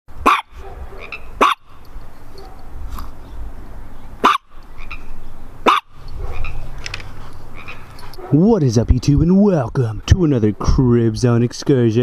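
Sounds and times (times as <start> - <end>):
dog barking: 0.2 - 2.7, 4.2 - 4.6, 5.6 - 6.6, 8.1 - 8.4.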